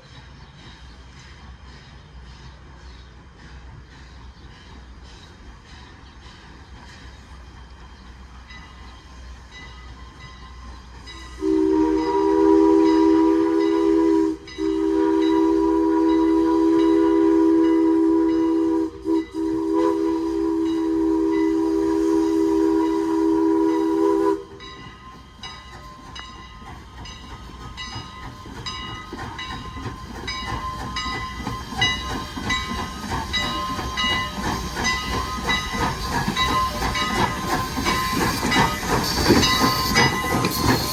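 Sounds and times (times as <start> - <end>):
locomotive exhaust beats: 0.0 - 40.9
steam hissing: 0.0 - 40.9
steam locomotive chime whistle: 8.3 - 40.9.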